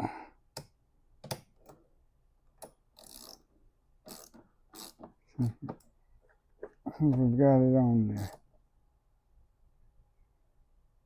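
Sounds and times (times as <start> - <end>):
ratchet wrench clicking: 3.0 - 3.4, 4.1 - 5.0.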